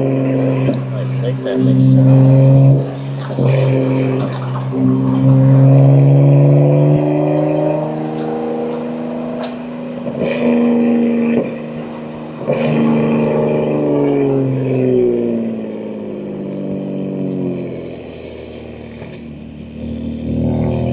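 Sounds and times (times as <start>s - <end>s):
car engine accelerating through gears: 0.0s - 20.9s.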